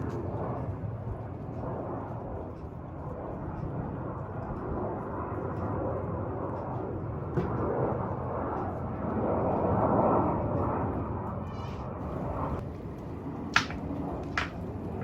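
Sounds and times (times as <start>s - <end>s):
jet engine rumble: 0.0s - 15.0s.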